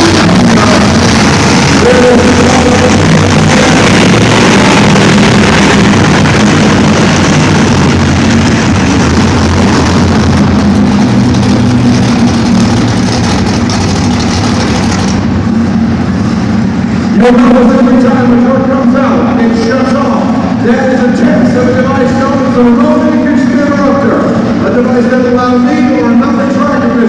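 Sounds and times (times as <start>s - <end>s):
monster truck engine running: 0.0s - 26.1s.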